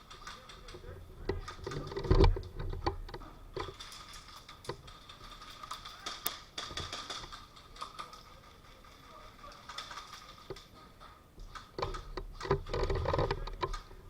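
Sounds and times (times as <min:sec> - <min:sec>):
sharp clicks and taps: 0:00.0 - 0:10.8.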